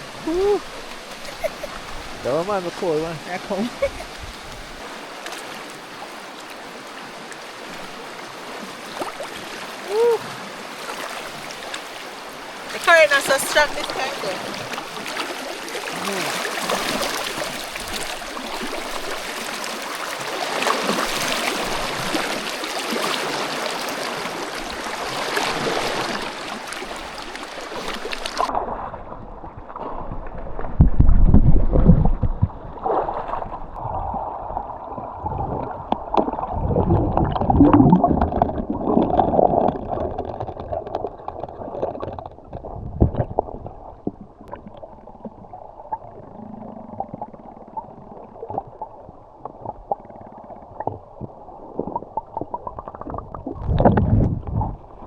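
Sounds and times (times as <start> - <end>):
river water rushing: 0.0 - 28.7
underwater gurgling and rumbling: 0.0 - 55.0
low underwater thumps: 29.1 - 34.2, 34.9 - 45.5, 50.8 - 55.0.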